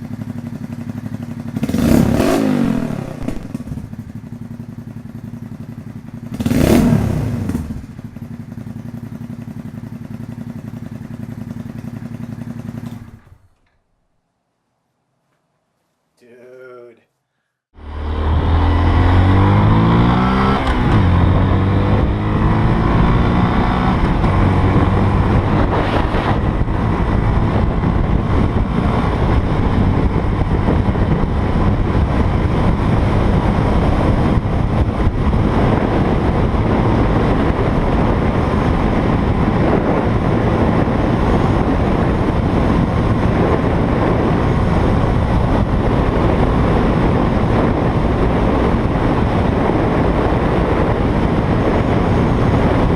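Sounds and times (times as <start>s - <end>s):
motorcycle engine running hard: 0.0s - 13.6s, 17.8s - 52.9s
wind noise on microphone: 18.0s - 52.9s.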